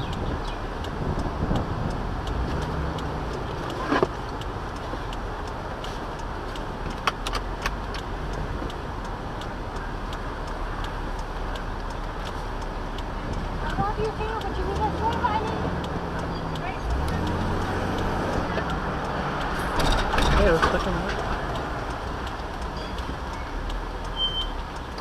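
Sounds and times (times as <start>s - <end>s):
car road and engine noise: 0.0s - 25.0s
fast regular ticking: 0.0s - 25.0s.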